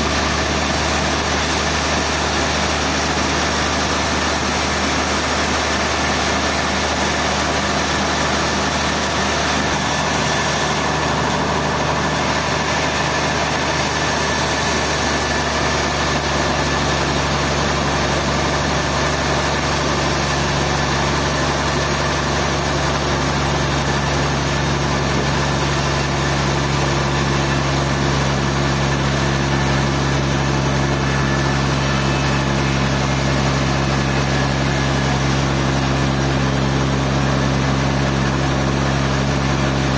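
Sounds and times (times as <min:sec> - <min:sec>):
sawmill machinery engine drone: 0:00.0 - 0:39.9.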